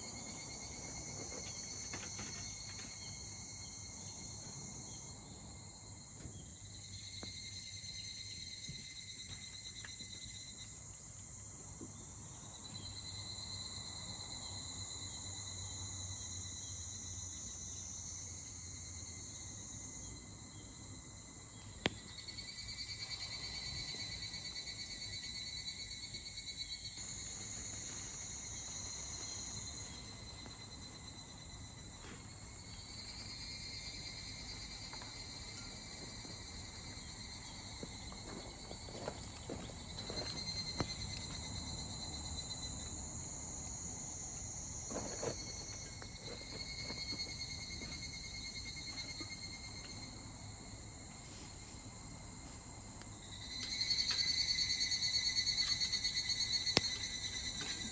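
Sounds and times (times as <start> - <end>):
insects singing chorus: 12.3 - 51.4, 52.9 - 57.9.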